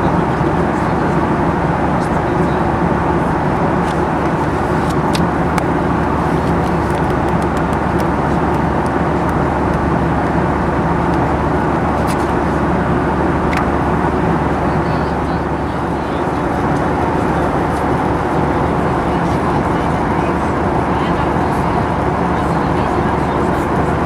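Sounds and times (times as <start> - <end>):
airplane cabin engine and airflow rush: 0.0 - 24.0
low hum: 0.0 - 24.0.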